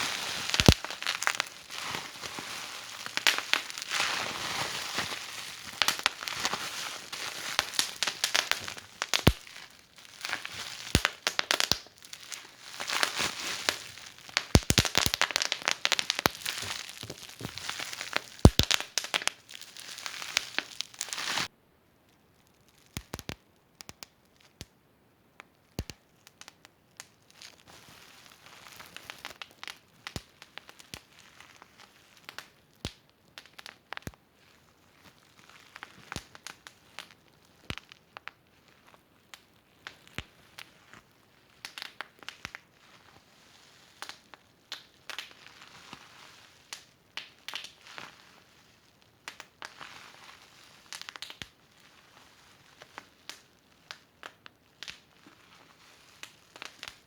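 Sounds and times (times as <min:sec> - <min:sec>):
wood fire crackling and popping: 0:00.0 - 0:21.5, 0:23.0 - 0:24.2, 0:25.8 - 0:26.6, 0:29.0 - 0:31.0, 0:32.3 - 0:34.2, 0:41.6 - 0:42.6, 0:44.0 - 0:45.4, 0:46.7 - 0:47.8, 0:49.3 - 0:49.8, 0:50.9 - 0:51.6, 0:53.2 - 0:55.0.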